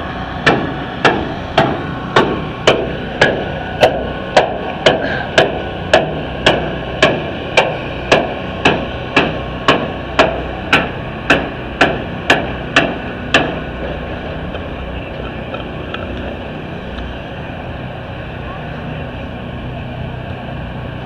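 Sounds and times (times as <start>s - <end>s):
hammer striking car body: 0.4s - 13.6s.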